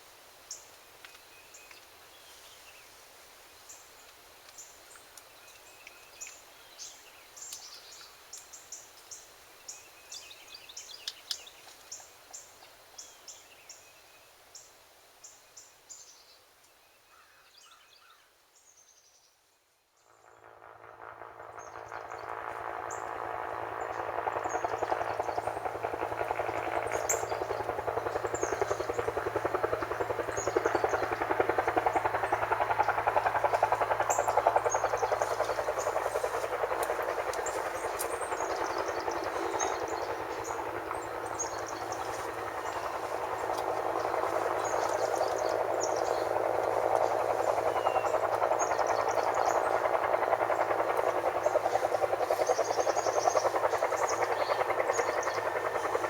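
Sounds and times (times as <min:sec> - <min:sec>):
helicopter rotor beat: 0:20.2 - 0:56.0
small birds chirping: 0:21.6 - 0:56.0.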